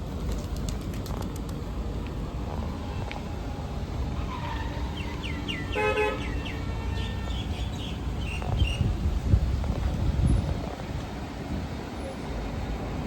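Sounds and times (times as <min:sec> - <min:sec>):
street traffic rumbling: 0:00.0 - 0:13.0
vehicle horn toot: 0:05.7 - 0:07.5.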